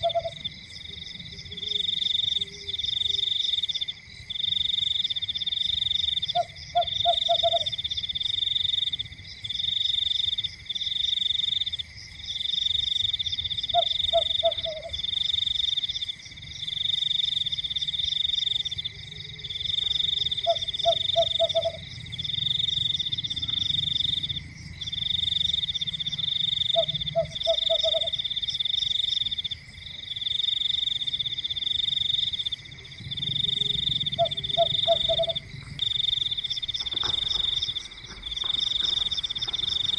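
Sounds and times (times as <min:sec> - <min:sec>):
low frog croak: 0:00.0 - 0:11.8, 0:12.4 - 0:39.9
frogs trilling in chorus: 0:00.0 - 0:39.9
steady high hum: 0:30.8 - 0:39.9.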